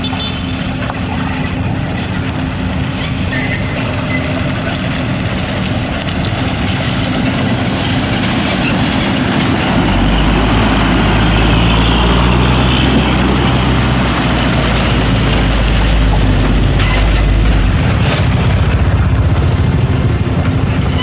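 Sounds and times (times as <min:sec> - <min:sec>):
heavy diesel engine running: 0:00.0 - 0:21.0
deep low rumble: 0:00.9 - 0:21.0.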